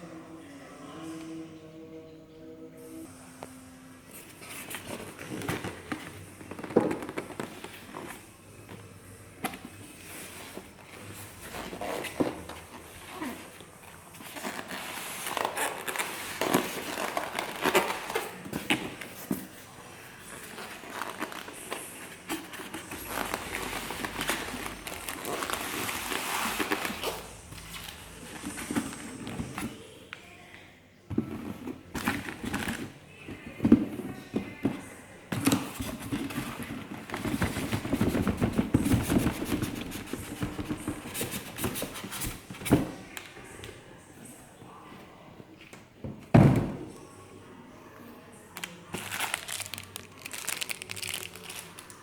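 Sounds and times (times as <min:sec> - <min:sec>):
packaging crinkling and rustling: 0:09.9 - 0:29.9, 0:48.6 - 0:52.0.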